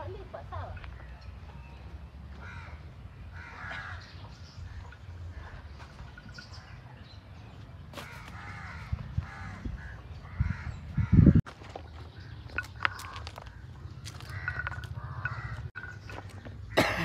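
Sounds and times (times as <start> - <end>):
bird calling: 8.0 - 17.0.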